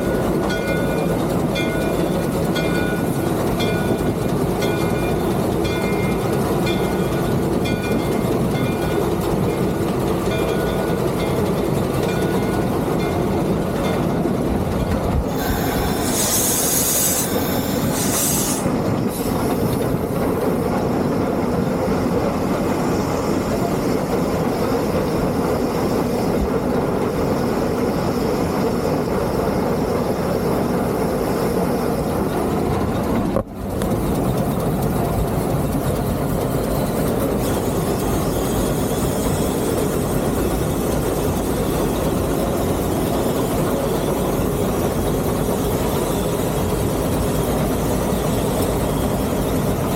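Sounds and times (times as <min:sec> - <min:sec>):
steam locomotive rumble and clatter: 0:00.0 - 0:49.9
loud high steam hiss: 0:15.2 - 0:21.0, 0:36.3 - 0:49.9.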